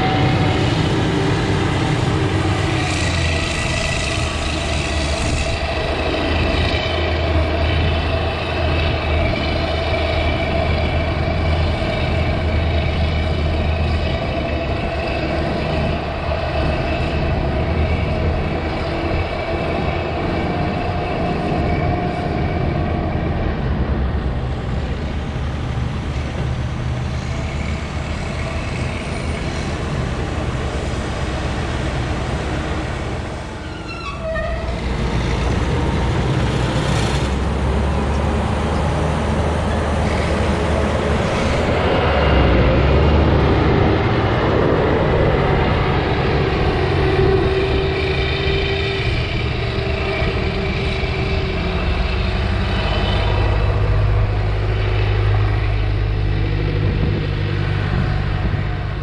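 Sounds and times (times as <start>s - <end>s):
heavy diesel engines under load: 0.0s - 59.0s
high squeaks: 33.6s - 34.8s.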